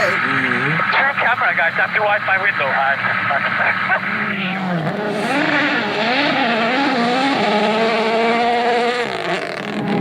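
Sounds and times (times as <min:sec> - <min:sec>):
rally car engine revving: 0:03.0 - 0:10.0.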